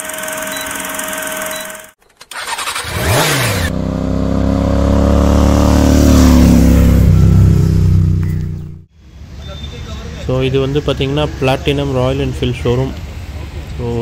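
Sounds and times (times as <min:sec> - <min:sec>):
motorcycle engine revving: 0:02.3 - 0:08.9.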